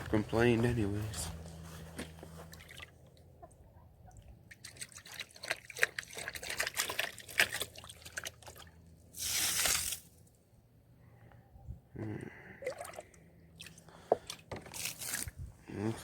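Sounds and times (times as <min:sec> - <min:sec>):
water splashing and dripping: 0:04.1 - 0:10.0
water pouring from plastic bucket: 0:04.7 - 0:10.0.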